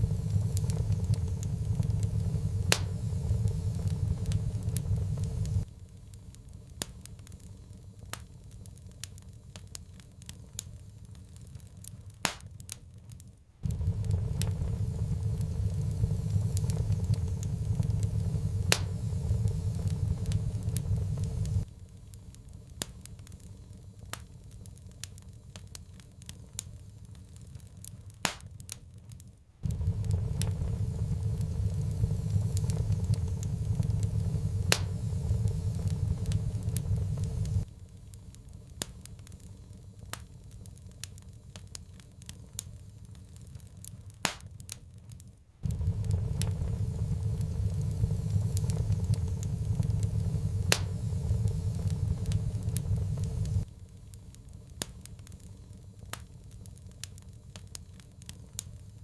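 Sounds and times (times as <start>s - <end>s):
low rumble: 0.0s - 5.7s, 13.6s - 21.7s, 29.6s - 37.7s, 45.6s - 54.1s
sharp pops from fire: 0.0s - 59.0s
wood fire crackling: 0.0s - 59.0s.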